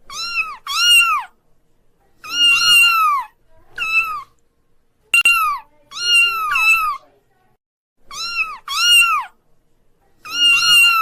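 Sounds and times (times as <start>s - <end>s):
kitten meowing: 0.1s - 1.3s, 2.2s - 4.3s, 5.2s - 7.0s, 8.1s - 9.3s, 10.2s - 11.0s.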